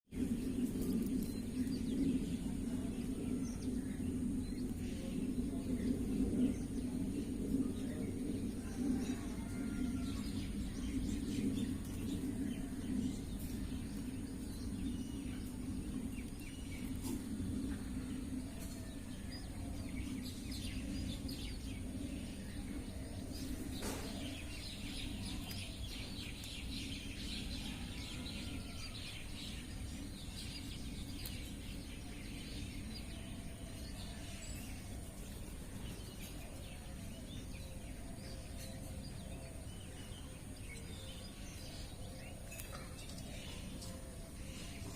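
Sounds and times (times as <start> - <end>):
low background rumble: 0.1 - 44.9
small birds chirping: 0.1 - 44.9.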